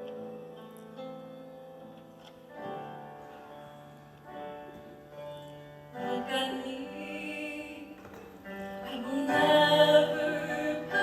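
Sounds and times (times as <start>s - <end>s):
slow instrumental music: 0.0s - 11.0s.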